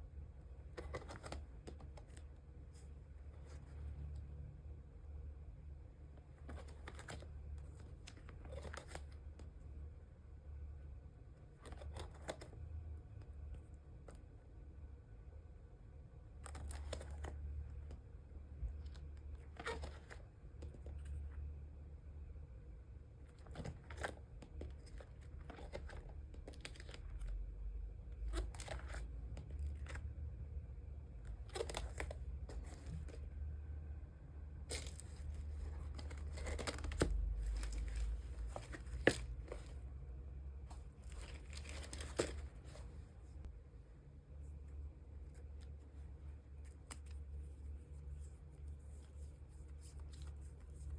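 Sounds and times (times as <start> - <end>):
low steady hum: 0.0 - 50.9
plastic packaging crinkling: 34.7 - 39.8, 41.0 - 42.8.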